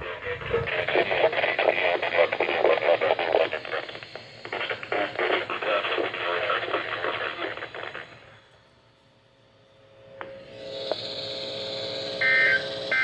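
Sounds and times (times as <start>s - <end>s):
weather radio voice through small speaker: 0.0s - 8.2s.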